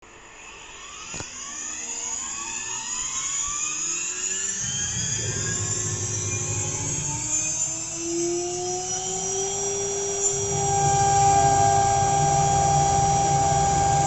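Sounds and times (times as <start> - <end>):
router spindle whine: 0.0 - 14.0
low rumble: 4.7 - 8.0, 10.3 - 14.0.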